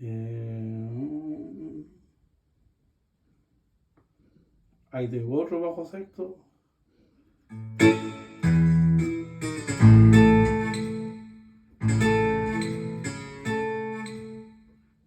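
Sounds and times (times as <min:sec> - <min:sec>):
strummed twelve-string chords: 0:07.6 - 0:14.6.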